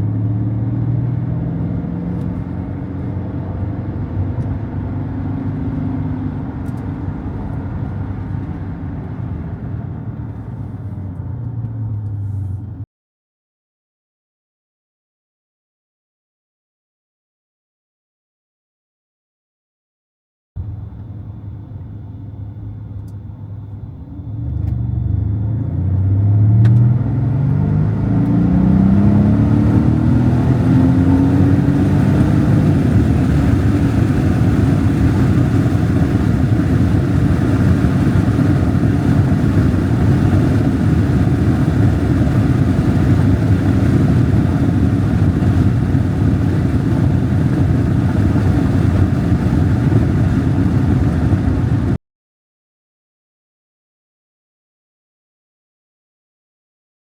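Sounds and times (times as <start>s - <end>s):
car engine accelerating hard: 0.0s - 12.8s, 24.0s - 52.0s.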